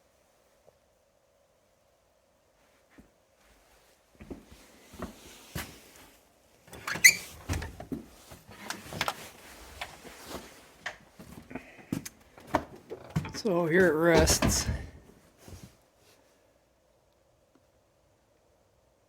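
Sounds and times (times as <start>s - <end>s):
knocks and clatter in workshop: 12.4s - 15.0s.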